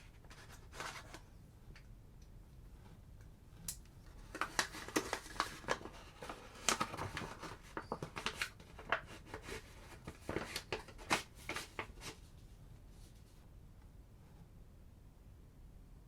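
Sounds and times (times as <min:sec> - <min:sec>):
packaging rustling and tapping: 0:04.2 - 0:12.2.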